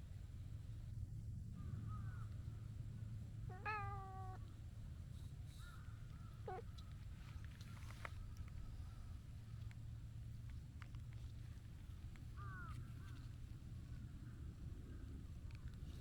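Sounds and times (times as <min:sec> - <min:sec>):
cat meowing: 0:03.5 - 0:04.4.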